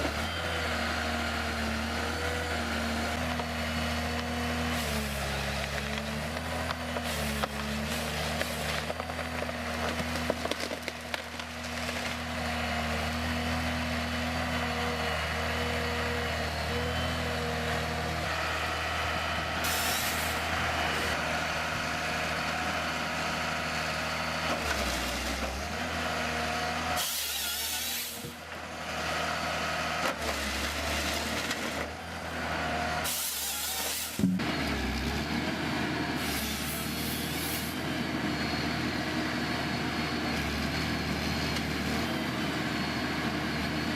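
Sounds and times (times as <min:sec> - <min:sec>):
heavy diesel machine running: 0:00.0 - 0:43.9.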